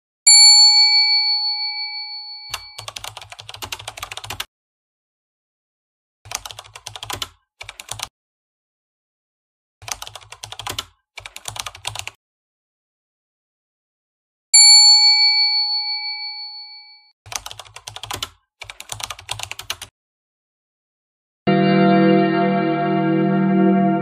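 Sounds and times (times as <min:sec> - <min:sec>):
bell-like ding: 0:00.3 - 0:02.8, 0:14.7 - 0:17.0, 0:21.5 - 0:24.0.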